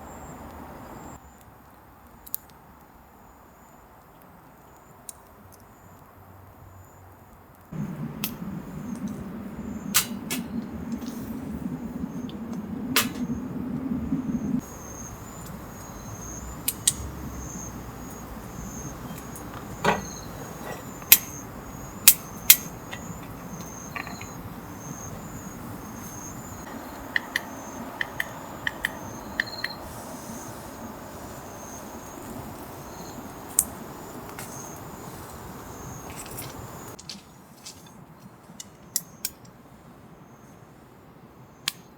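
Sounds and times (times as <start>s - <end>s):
insect chirping: 0.0s - 1.4s, 7.7s - 37.0s
sharp clicks and knocks: 22.0s - 24.5s, 26.7s - 29.8s.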